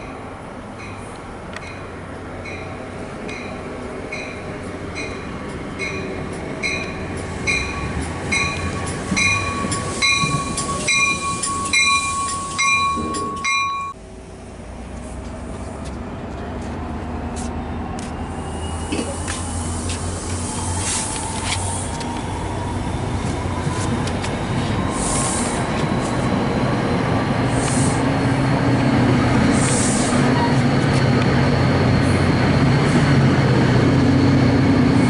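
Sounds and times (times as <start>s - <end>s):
train cars rumbling: 0.0s - 35.0s
train bell ringing: 0.8s - 14.0s
high squeal: 7.5s - 13.9s, 18.1s - 23.9s.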